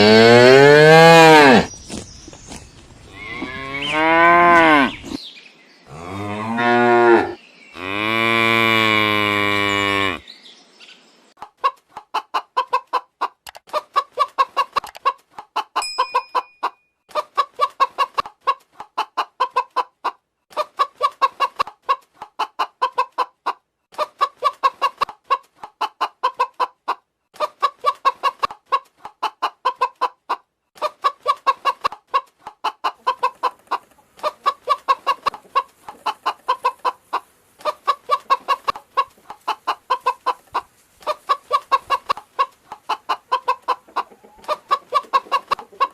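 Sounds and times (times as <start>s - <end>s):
chicken clucking: 11.4s - 45.9s.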